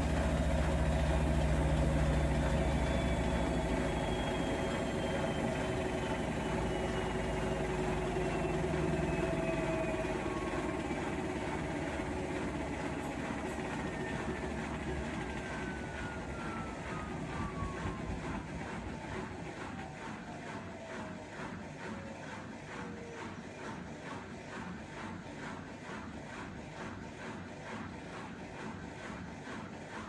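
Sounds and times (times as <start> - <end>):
low hum: 0.0 - 19.4
washing machine motor whine: 0.0 - 24.0.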